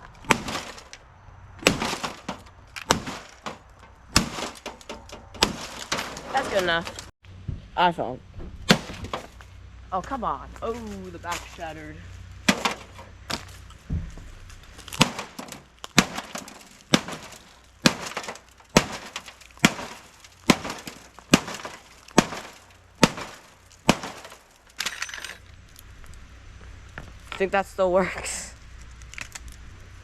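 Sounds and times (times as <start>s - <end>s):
glass cracking and breaking: 0.1s - 1.0s, 1.6s - 7.1s, 12.4s - 25.9s, 28.8s - 29.6s.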